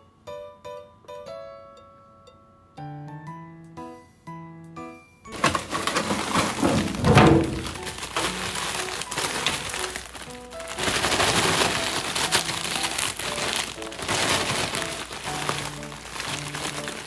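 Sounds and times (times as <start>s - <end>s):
light plucked background music: 2.3s - 17.0s
plastic packaging crinkling: 5.3s - 17.0s.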